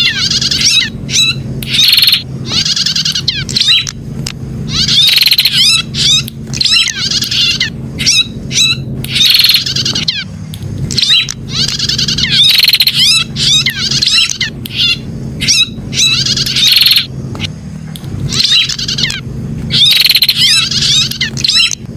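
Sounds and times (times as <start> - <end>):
bird singing trilled notes: 0.0 - 4.0, 4.6 - 17.5, 18.2 - 21.9
low steady hum: 0.0 - 21.9.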